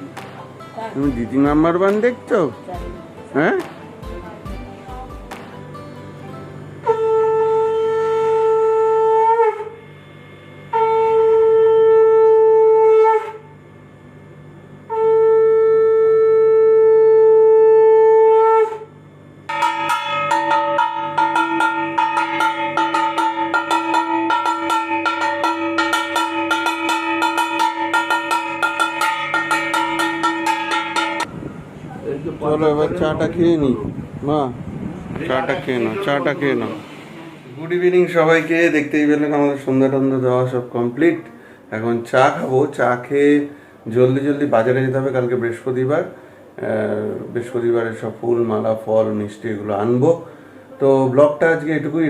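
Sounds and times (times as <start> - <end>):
rapidly pulsing ringing: 6.5 - 14.9, 18.9 - 33.3
conch shell blasts: 6.7 - 13.6, 14.8 - 31.4.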